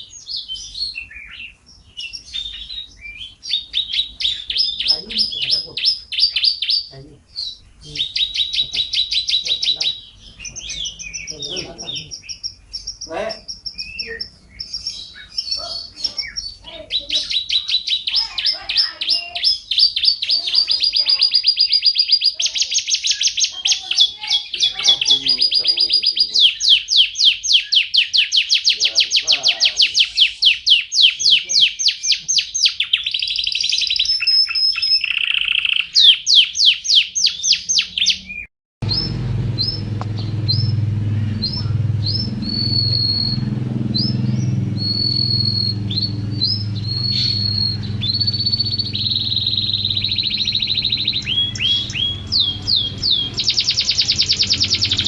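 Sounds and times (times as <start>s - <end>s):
bird singing sweeping whistles: 0.0s - 39.8s, 40.5s - 40.8s, 41.4s - 55.0s
low steady hum: 38.8s - 55.0s.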